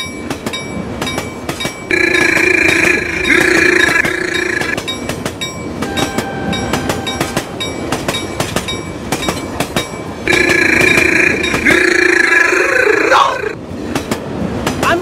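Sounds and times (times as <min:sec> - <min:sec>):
train wheels clickety-clack: 0:00.0 - 0:12.3, 0:13.6 - 0:15.0
train horn chord: 0:05.8 - 0:07.5.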